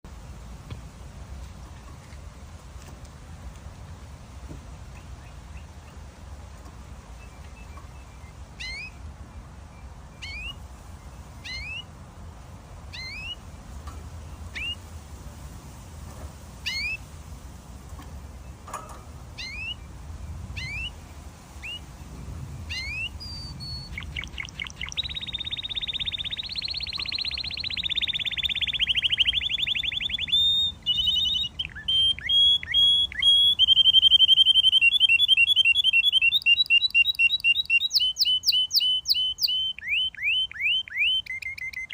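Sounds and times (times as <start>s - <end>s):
canary singing: 7.1s - 11.9s, 12.9s - 13.6s, 14.4s - 14.8s, 16.6s - 17.0s, 18.4s - 21.9s, 22.6s - 41.9s.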